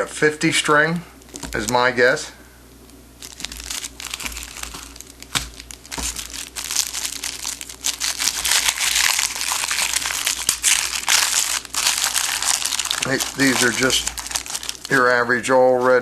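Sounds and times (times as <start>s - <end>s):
wrapper crinkling: 3.2s - 16.0s.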